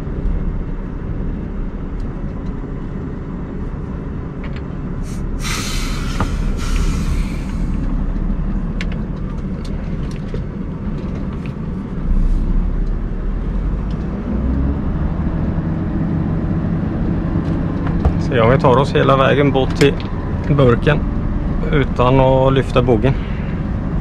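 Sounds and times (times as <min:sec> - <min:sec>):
truck diesel engine running: 0:00.0 - 0:24.0
short air hiss: 0:05.0 - 0:07.8.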